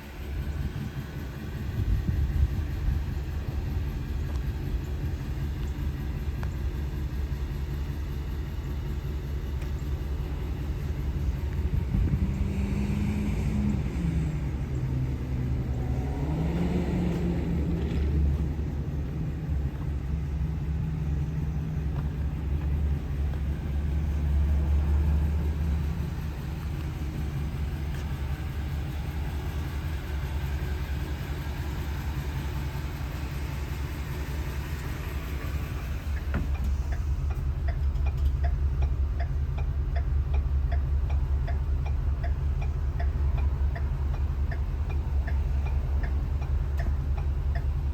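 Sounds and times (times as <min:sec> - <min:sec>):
regular ticking: 0:00.0 - 0:47.9
van engine idling: 0:00.0 - 0:47.9.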